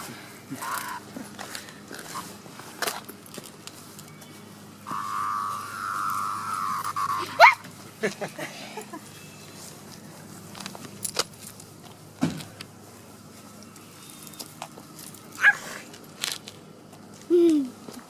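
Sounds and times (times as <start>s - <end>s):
cicada buzzing and clicking: 0.6s - 1.0s, 4.8s - 7.4s
short falling whine: 4.8s - 7.6s.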